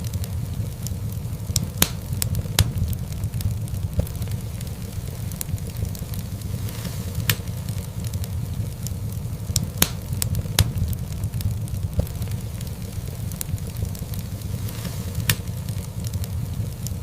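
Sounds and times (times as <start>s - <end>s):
fire low rumble: 0.0s - 17.0s
wood fire crackling and popping: 0.0s - 17.0s.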